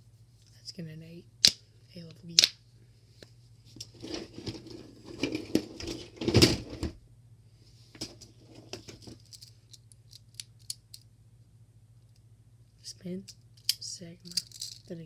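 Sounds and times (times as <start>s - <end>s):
toys rustling and knocking: 3.7s - 7.0s, 7.9s - 11.0s, 13.7s - 14.9s.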